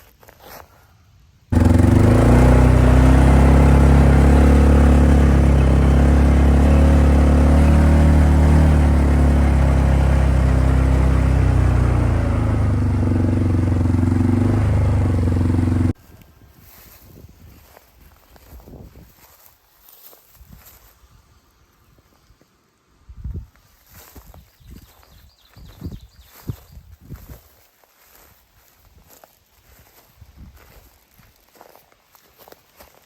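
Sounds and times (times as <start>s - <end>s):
utility vehicle engine running: 1.5s - 16.0s.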